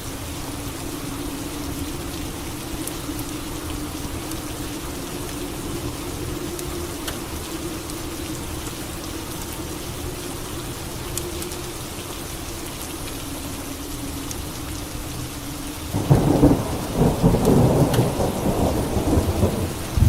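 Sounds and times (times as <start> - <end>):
rain falling: 0.0 - 20.0
drip ticks: 17.4 - 18.1.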